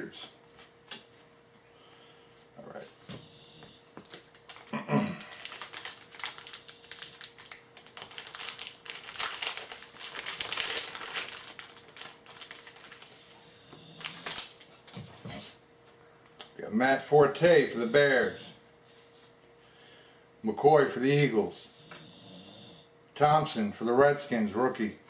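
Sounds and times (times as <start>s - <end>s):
wrapper crinkling: 4.0s - 13.4s, 14.0s - 15.0s.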